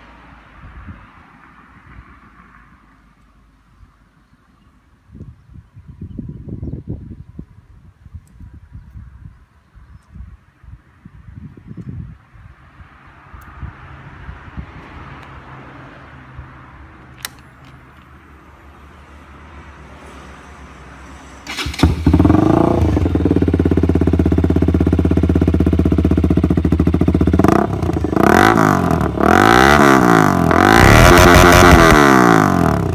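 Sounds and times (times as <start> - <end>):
clicks: 17.1 - 18.2
motorcycle engine revving: 21.5 - 32.9.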